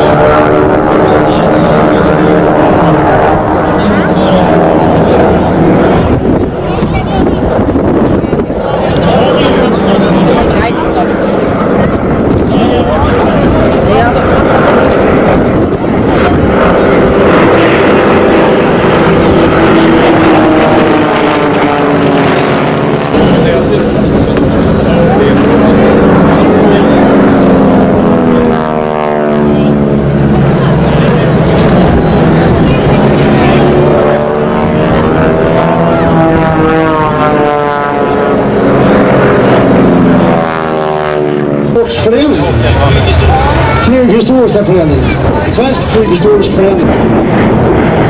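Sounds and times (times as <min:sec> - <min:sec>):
propeller aircraft engine: 0:00.0 - 0:48.0.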